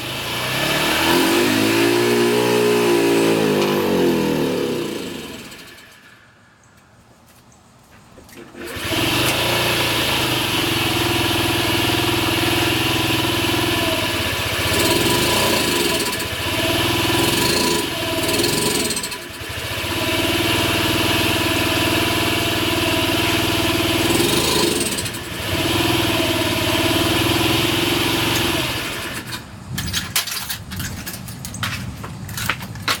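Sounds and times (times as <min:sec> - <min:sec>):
scooter engine running unevenly: 0:08.6 - 0:29.4.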